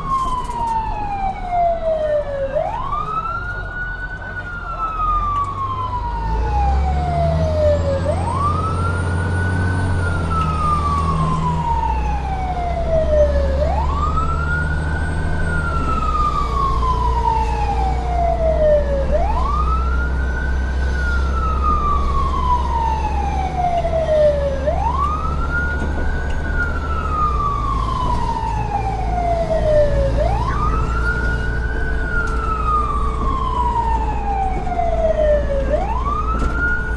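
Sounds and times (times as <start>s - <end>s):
low engine rumble: 0.0s - 36.9s
siren wailing: 0.0s - 36.9s.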